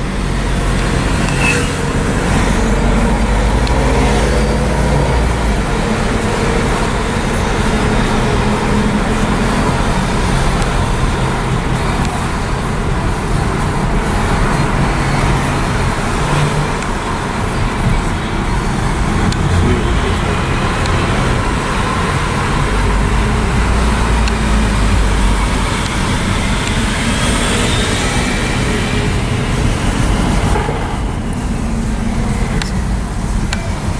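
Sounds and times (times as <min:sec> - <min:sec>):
car engines low hum: 0:00.0 - 0:33.9.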